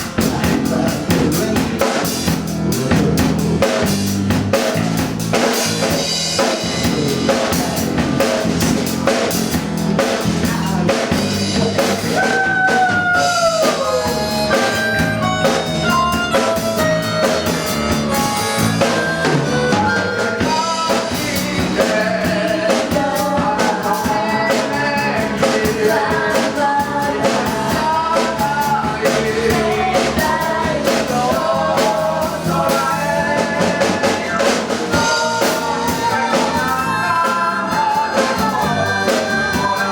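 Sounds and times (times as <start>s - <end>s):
drum kit beat: 0.0s - 39.9s
large band playing live: 0.0s - 39.9s
melodic lead line: 0.0s - 39.9s.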